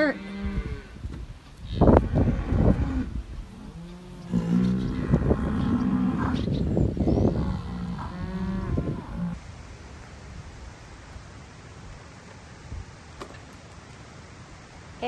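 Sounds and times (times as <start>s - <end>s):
bull bellowing: 1.7s - 6.5s, 7.3s - 9.4s.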